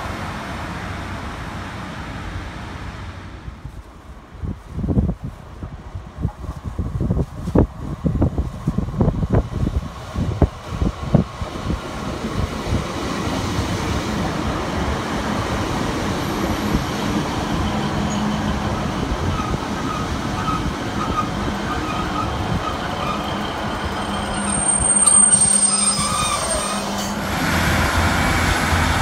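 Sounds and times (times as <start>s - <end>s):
diesel train passing: 0.0s - 29.0s
wind buffeting microphone: 2.8s - 25.0s.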